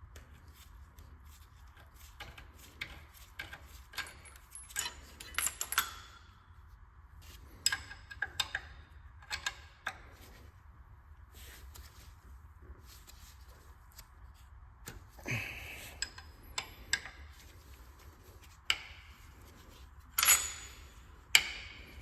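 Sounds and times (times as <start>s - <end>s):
low steady hum: 0.0s - 22.0s
metal tools clinking: 20.2s - 21.9s.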